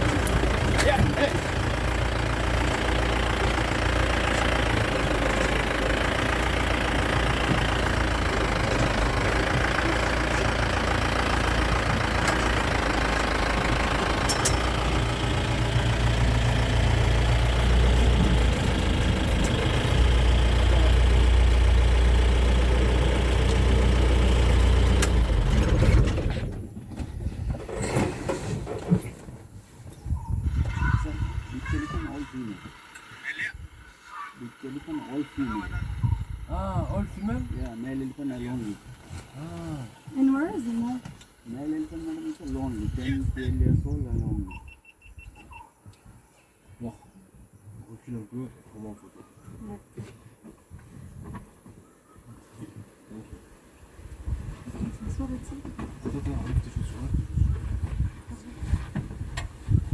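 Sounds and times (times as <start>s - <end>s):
vehicle engine running: 0.0s - 26.9s, 30.4s - 44.4s, 53.1s - 59.9s.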